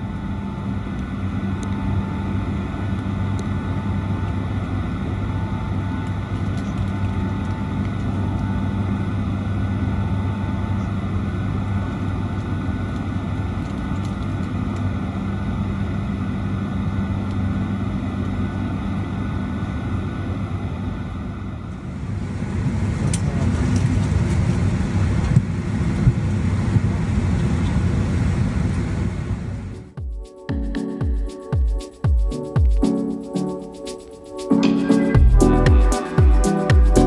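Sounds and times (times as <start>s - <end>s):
constant hum: 0.0s - 37.0s.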